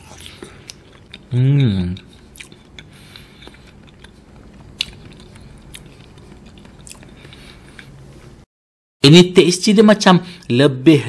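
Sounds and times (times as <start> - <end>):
person chewing jelly: 0.0 - 8.4.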